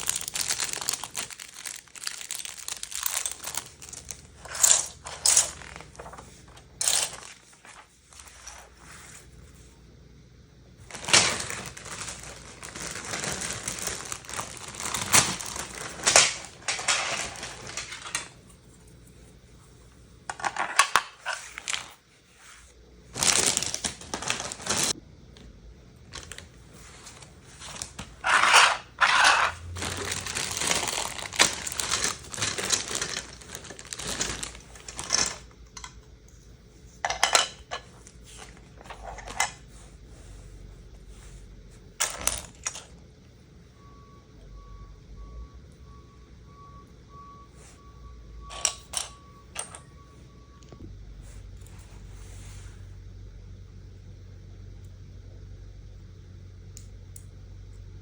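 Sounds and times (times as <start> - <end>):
packaging crinkling and rustling: 0.0 - 8.8, 10.8 - 18.4, 20.3 - 22.0, 23.1 - 25.0, 26.1 - 36.0, 37.0 - 39.6.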